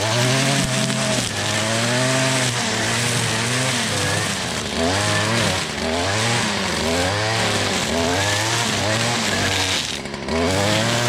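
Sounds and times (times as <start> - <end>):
string trimmer engine revving: 0.0 - 11.0.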